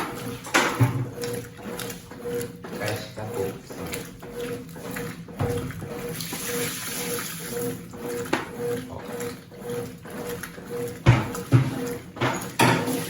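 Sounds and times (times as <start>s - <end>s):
washing machine agitating: 0.0s - 13.0s
water pouring into tub: 5.9s - 7.7s.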